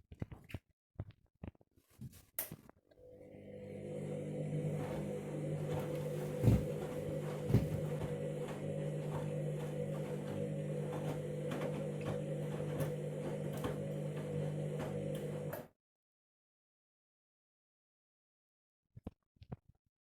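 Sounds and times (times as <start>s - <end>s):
washing machine humming: 3.0s - 15.7s
washing machine dull thumps: 4.8s - 15.1s.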